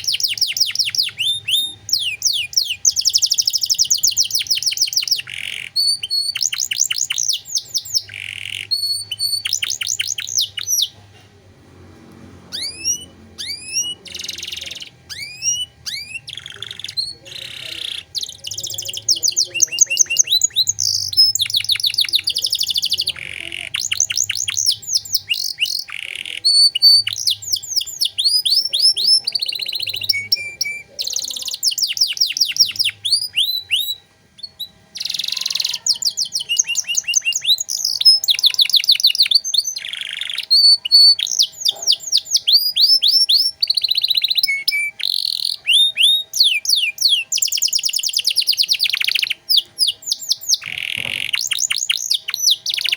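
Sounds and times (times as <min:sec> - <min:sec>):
canary singing trills: 0:00.0 - 0:11.6, 0:12.3 - 0:52.9.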